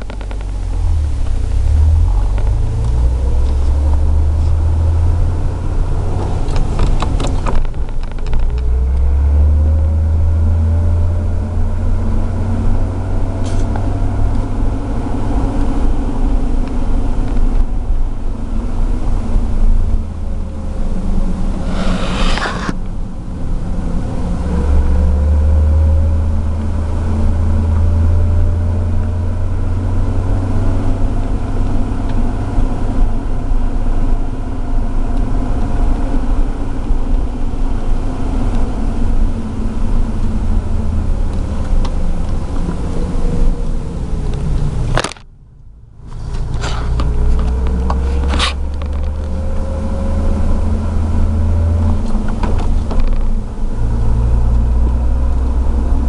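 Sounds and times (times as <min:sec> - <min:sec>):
car driving with low drone: 0:00.0 - 0:56.0
whine rising and falling: 0:20.6 - 0:23.5.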